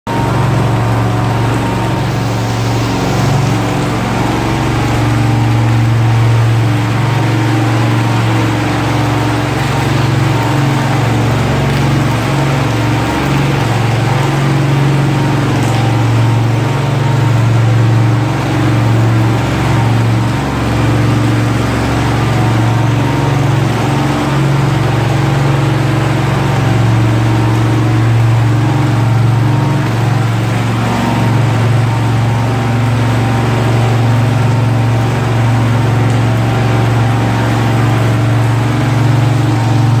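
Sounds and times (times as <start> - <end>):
high-pressure pump engine droning: 0.1 - 40.0.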